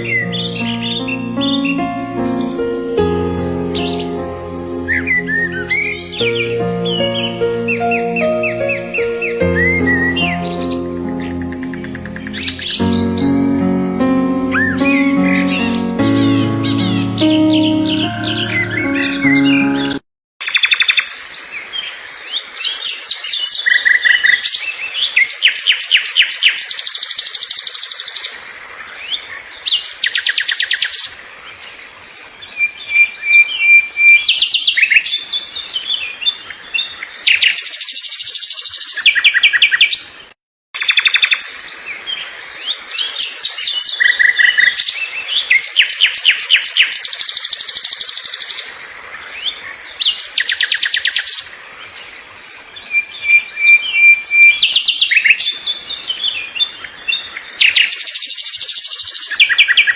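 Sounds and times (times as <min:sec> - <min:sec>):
songbirds chirping and trilling: 0:00.0 - 0:20.0.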